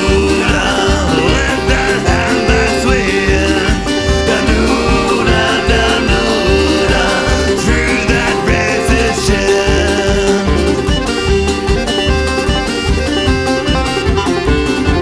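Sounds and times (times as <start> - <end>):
accordion: 0.0 - 15.0
banjo: 0.0 - 15.0
folk punk song: 0.0 - 15.0
steady driving beat: 0.0 - 15.0.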